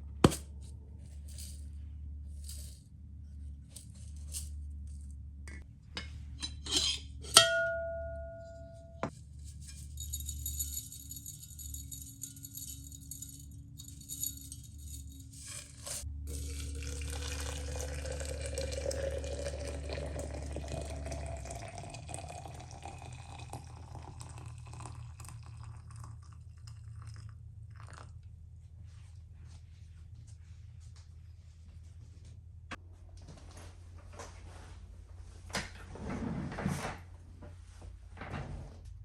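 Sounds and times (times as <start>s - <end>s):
water running into a container: 16.3s - 28.0s.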